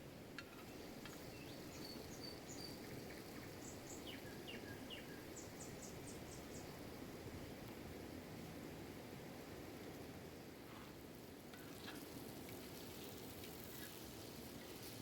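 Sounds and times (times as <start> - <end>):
small birds chirping: 0.7 - 6.8.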